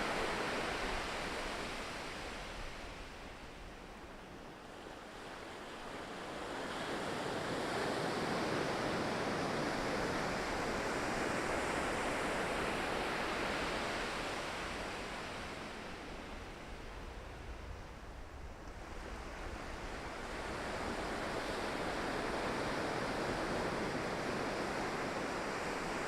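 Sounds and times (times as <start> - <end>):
ocean waves breaking on shore: 0.0 - 26.0.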